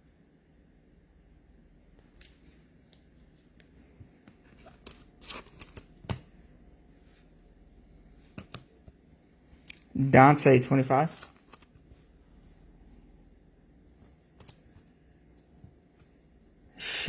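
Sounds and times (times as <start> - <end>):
trading cards rustling: 2.0 - 6.3, 10.7 - 12.4, 13.8 - 16.1.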